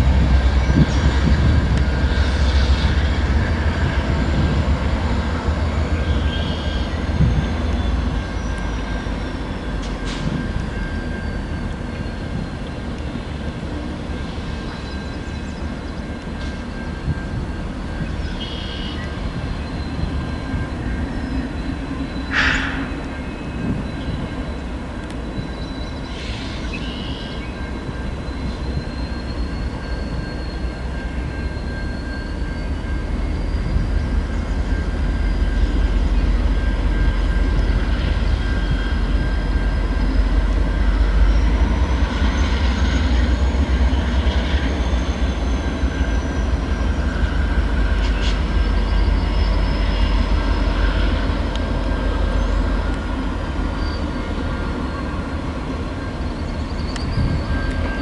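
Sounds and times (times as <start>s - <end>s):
train wheels rumbling on rail: 0.0s - 58.0s
high-pitched wheel squeal: 2.1s - 12.5s, 25.3s - 51.2s, 53.7s - 55.2s, 56.0s - 58.0s.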